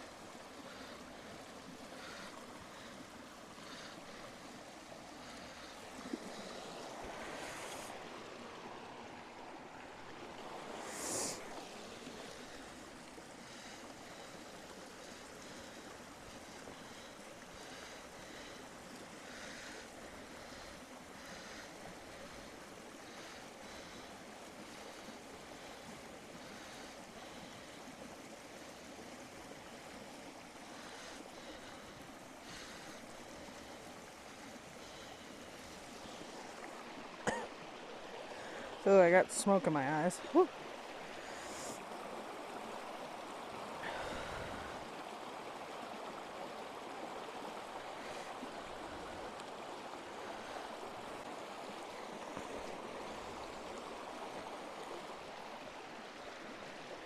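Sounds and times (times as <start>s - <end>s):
campfire hissing: 4.7s - 8.4s, 10.4s - 18.6s, 41.0s - 42.8s.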